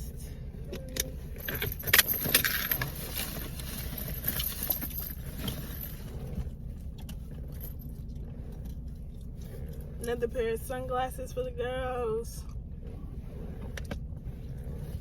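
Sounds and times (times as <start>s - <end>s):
steady low rumble: 0.0s - 15.0s
belongings rustling and clattering: 0.6s - 10.2s.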